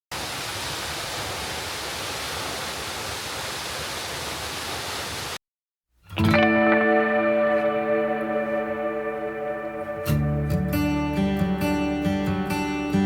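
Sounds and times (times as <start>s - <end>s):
waterfall rushing: 0.1s - 5.4s
ambient guitar music: 6.1s - 13.0s.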